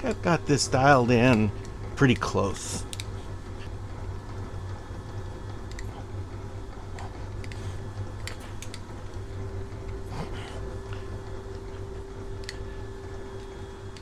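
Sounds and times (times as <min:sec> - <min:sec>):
electrical hum: 0:00.0 - 0:14.0
light clicks: 0:02.9 - 0:03.2.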